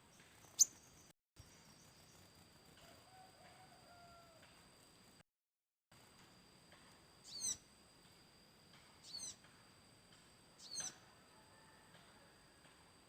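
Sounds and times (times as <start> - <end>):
bird calls with falling notes: 7.3 - 7.6, 10.6 - 11.0.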